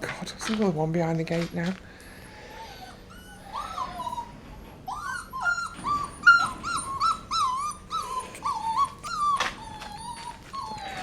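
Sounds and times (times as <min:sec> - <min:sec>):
puppy whimpering and squealing: 0:02.4 - 0:11.0.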